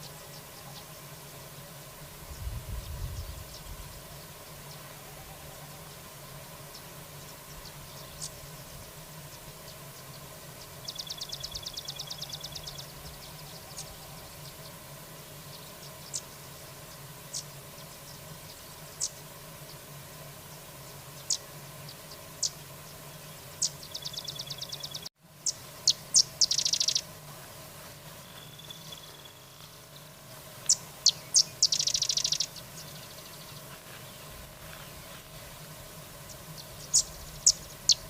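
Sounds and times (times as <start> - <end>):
steady low hum: 0.0 - 38.0
songbird chips and trills: 9.3 - 14.8, 21.2 - 27.1, 28.1 - 35.3, 36.3 - 38.0.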